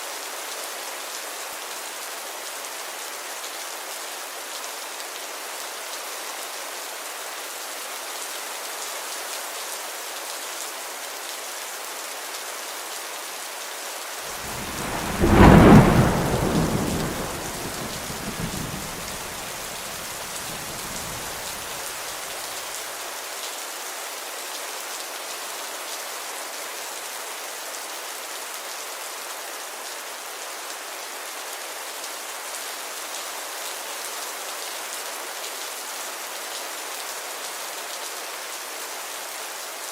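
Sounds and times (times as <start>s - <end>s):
steady rain falling: 0.0s - 39.9s
thunder clap and rumble: 14.4s - 21.8s.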